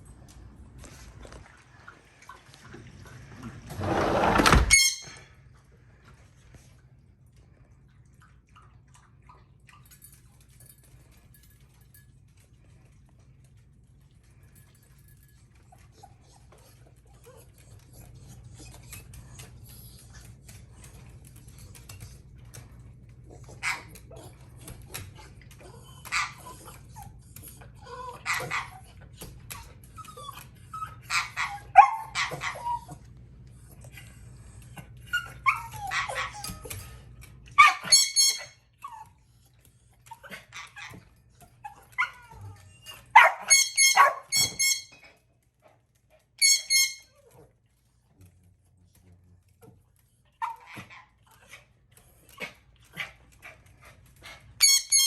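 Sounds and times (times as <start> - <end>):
faint low hum: 0.0 - 55.0
dog yipping and whimpering: 25.8 - 27.1, 27.8 - 28.9, 29.9 - 33.0, 35.1 - 36.6, 37.6 - 39.2, 41.6 - 45.0.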